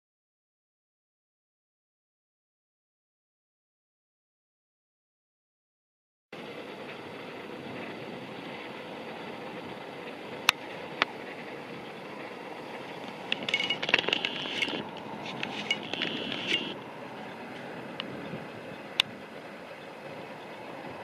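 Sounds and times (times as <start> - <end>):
distant train passing: 6.4 - 21.0
crackling and clicks: 10.0 - 20.4
sharp clicks: 13.0 - 16.9.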